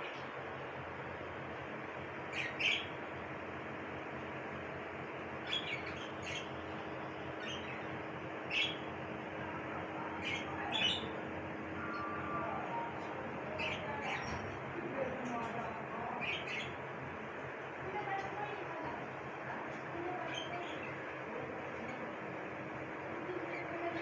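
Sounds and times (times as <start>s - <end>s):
bird chirping: 2.3s - 3.0s, 5.4s - 8.9s, 10.0s - 11.2s.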